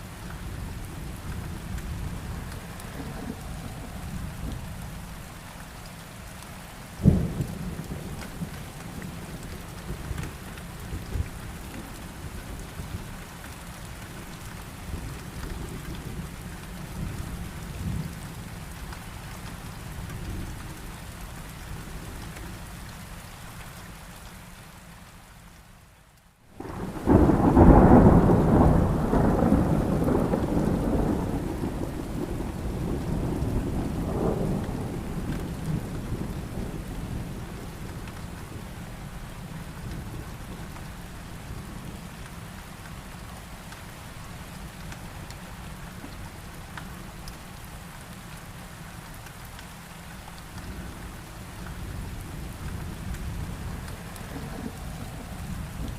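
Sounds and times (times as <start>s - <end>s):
steady rain: 0.0s - 55.9s
thunder: 26.6s - 38.2s, 51.8s - 55.9s.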